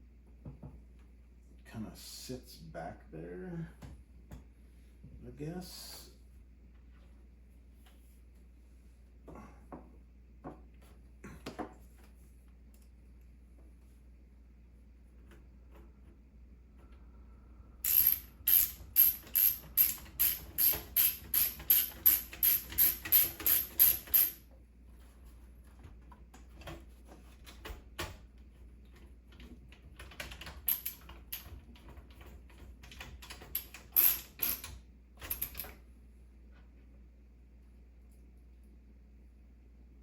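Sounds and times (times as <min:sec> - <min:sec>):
ratchet clicking: 0:17.8 - 0:24.4.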